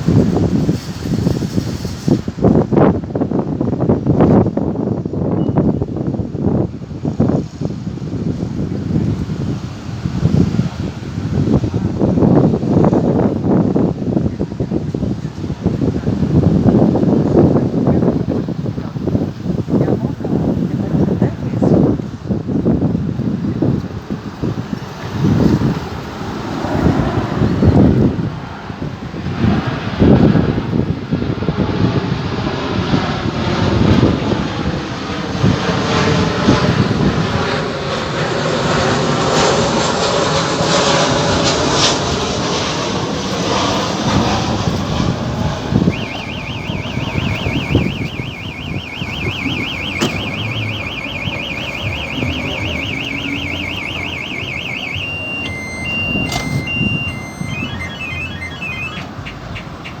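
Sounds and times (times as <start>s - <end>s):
jet engines rumbling: 0.0s - 3.9s, 15.3s - 60.0s
wind on microphone: 0.0s - 58.4s
electronic alarm warbling: 45.4s - 59.2s
short beeps: 45.8s - 59.1s.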